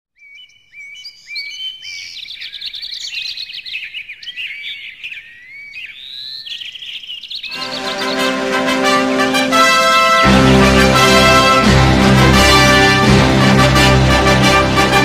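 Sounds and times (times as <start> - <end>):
birds chirping and whistling: 0.2 - 8.5.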